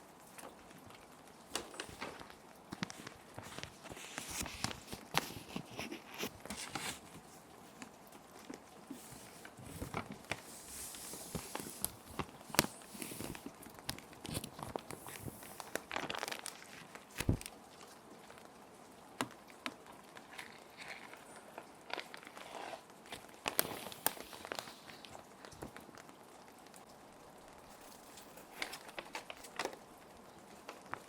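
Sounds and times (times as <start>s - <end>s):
faint steady rain: 0.0s - 31.0s
plastic sheet protectors crinkling: 0.5s - 7.4s, 8.9s - 17.6s, 20.0s - 25.9s, 27.6s - 29.9s.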